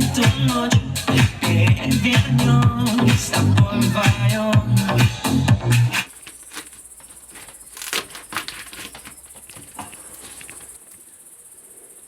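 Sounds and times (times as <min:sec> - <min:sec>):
crickets chirring: 0:05.9 - 0:12.0.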